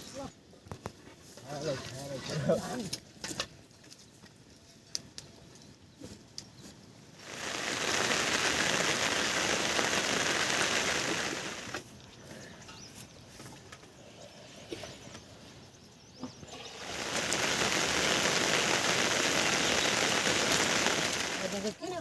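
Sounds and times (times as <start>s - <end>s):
rain hiss: 7.1s - 12.1s, 16.4s - 22.0s.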